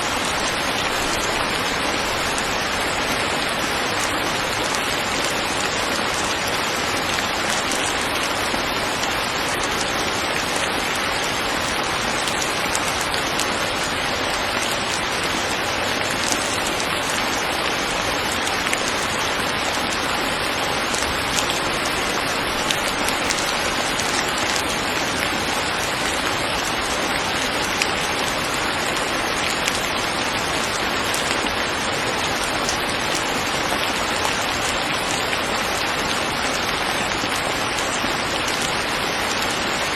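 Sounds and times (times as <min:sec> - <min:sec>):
steady rain hissing: 0:00.0 - 0:39.9
drop ticks: 0:16.2 - 0:16.8.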